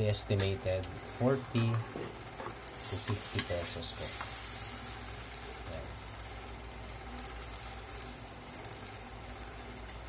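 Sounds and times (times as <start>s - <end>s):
batter sizzling in a wok: 2.2s - 10.0s.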